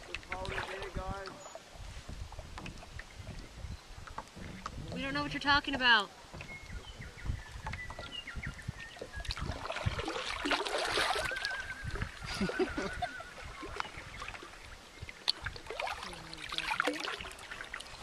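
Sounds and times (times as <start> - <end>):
water splashing and lapping: 0.0 - 18.0.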